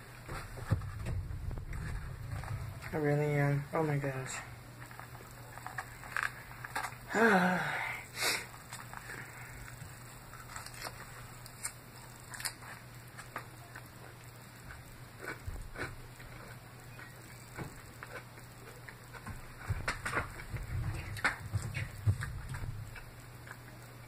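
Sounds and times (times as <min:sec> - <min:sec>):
low hum: 0:00.0 - 0:12.3, 0:13.6 - 0:24.0
chewing salad: 0:08.6 - 0:24.0.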